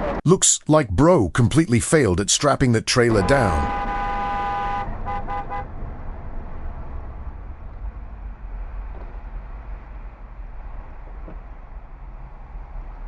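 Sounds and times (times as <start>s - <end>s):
road and engine rumble: 1.6s - 13.0s
vehicle horn honking: 3.1s - 5.7s.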